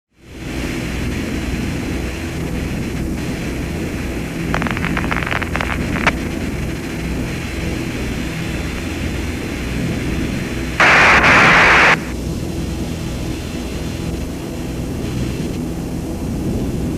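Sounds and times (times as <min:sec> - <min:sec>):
steady radio hiss: 0:00.2 - 0:12.2, 0:12.8 - 0:15.6
loud burst of static: 0:00.4 - 0:12.2
crackles: 0:02.5 - 0:07.7, 0:10.8 - 0:12.1
low hum: 0:02.8 - 0:12.4.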